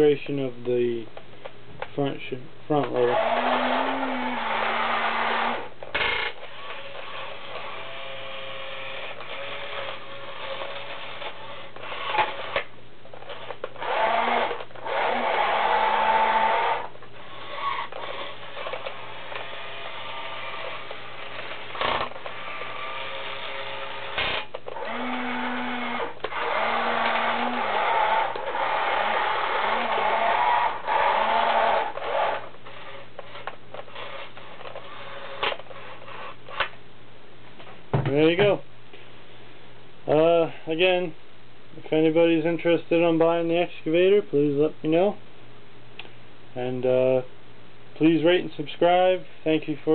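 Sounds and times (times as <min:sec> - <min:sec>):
toy electric motors whining: 0:02.8 - 0:36.7.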